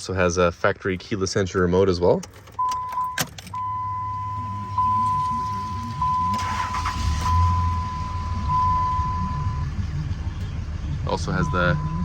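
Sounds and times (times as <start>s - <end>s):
engine rumbling: 0.0s - 12.0s
electronic warning tone: 2.6s - 10.2s, 11.2s - 12.0s.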